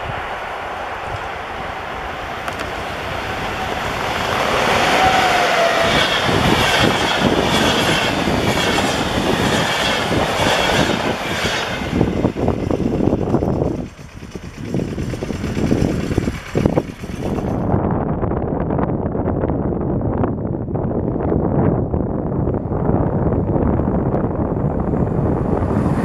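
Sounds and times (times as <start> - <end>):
passenger train passing: 0.0 - 17.8, 24.4 - 26.0
train wheels clattering: 1.0 - 17.7.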